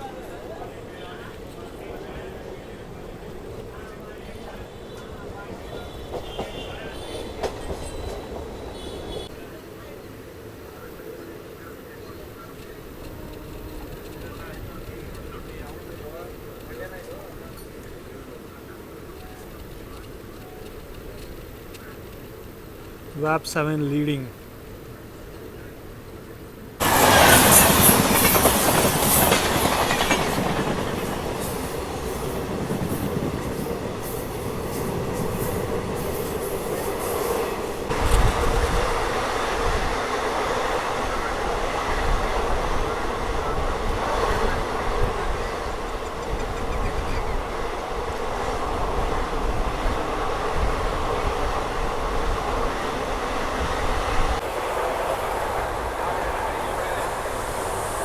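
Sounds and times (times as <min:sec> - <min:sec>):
train rumble: 0:00.0 - 0:10.2, 0:12.4 - 0:58.0
train wheels clattering on track: 0:03.5 - 0:09.3, 0:26.8 - 0:58.0
hiss: 0:26.8 - 0:30.3, 0:52.5 - 0:58.0.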